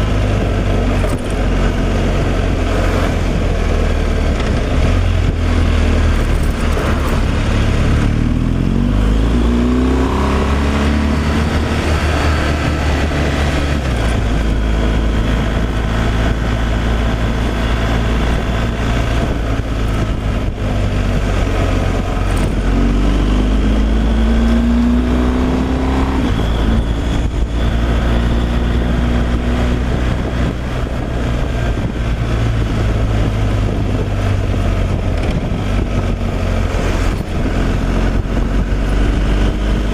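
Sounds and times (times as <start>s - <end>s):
truck diesel engine running: 0.0s - 24.9s.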